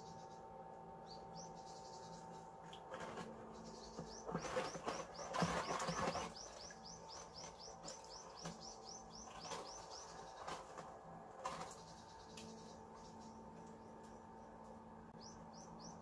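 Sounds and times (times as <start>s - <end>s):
songbird chirping: 0.0s - 16.0s.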